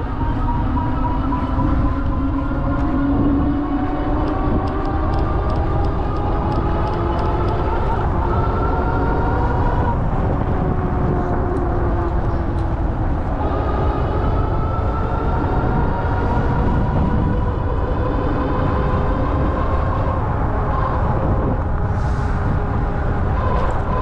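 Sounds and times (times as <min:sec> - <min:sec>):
wind and tyre rumble: 0:00.0 - 0:24.0.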